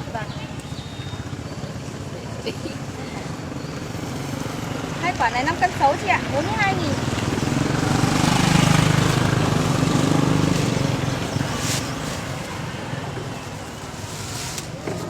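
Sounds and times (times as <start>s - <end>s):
vehicle engine passing: 3.8s - 13.2s.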